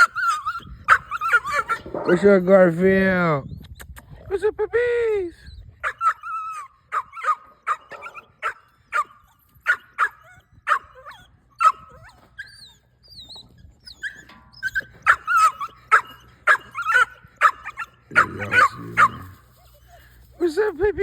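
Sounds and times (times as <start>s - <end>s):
puppies whining: 0.0s - 2.5s, 5.4s - 20.2s
puppies yelping: 0.0s - 2.5s, 5.8s - 20.3s.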